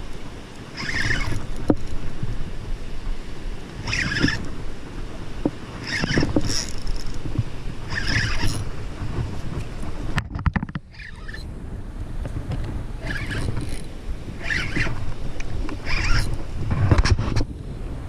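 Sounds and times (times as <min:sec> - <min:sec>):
fishing reel whirring: 0:00.0 - 0:10.0, 0:10.9 - 0:11.5, 0:13.0 - 0:16.6
wind buffeting microphone: 0:00.0 - 0:18.0.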